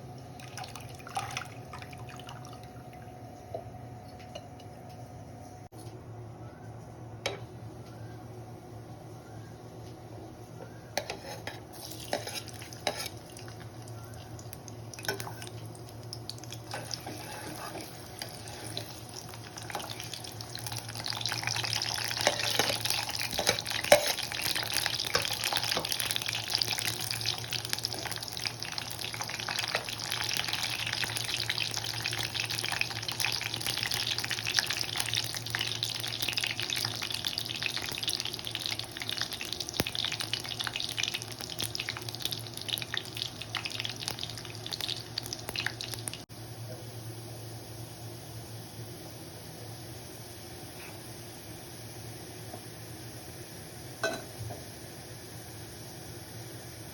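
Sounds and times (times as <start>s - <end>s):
food sizzling in a pan: 11.0s - 46.3s
spoon clicking and scraping: 22.2s - 24.3s.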